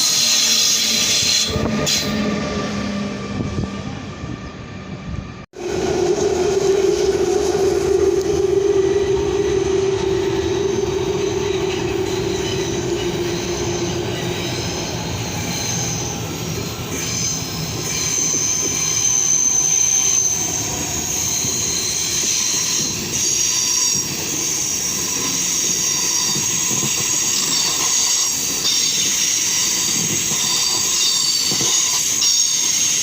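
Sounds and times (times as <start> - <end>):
high squeal: 0.0 - 33.0
train running with whining tone: 0.0 - 33.0.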